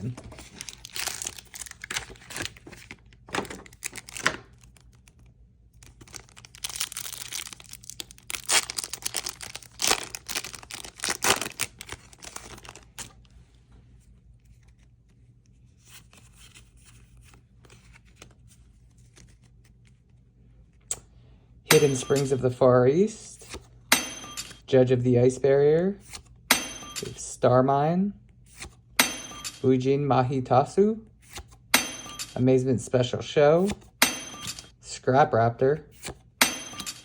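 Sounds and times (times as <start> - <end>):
plastic packaging crinkling and tearing: 0.0 - 13.3.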